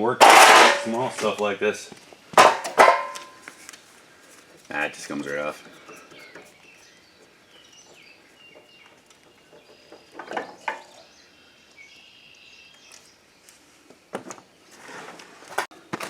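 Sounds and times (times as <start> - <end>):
parts clattering: 0.0 - 1.4, 2.4 - 3.8
birds chirping: 3.2 - 13.5.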